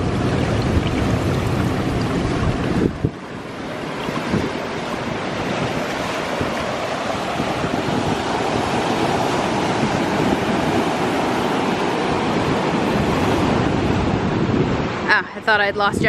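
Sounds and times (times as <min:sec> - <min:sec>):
ocean surf washing ashore: 0:00.0 - 0:16.0
wind on microphone: 0:00.0 - 0:16.0.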